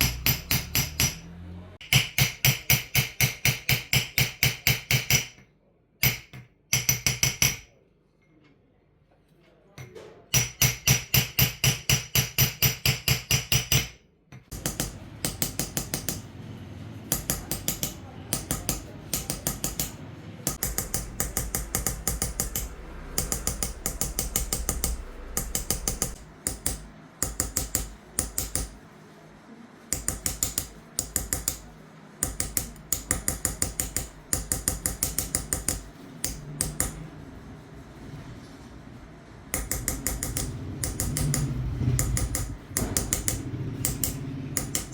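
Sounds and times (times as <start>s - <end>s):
hammer tapping chisel into metal: 0.0s - 7.7s, 9.8s - 16.3s, 17.1s - 28.8s, 29.9s - 37.0s, 39.5s - 44.9s.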